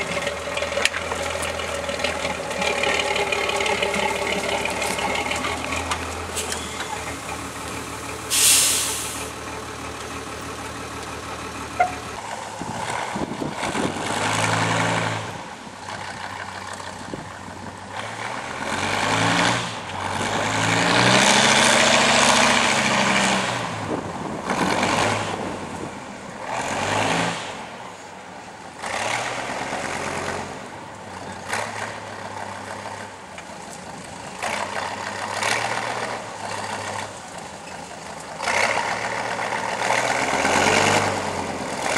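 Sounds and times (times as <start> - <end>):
truck diesel engine revving: 0.0 - 27.8, 28.7 - 41.9
short sharp burst of noise: 8.3 - 9.3.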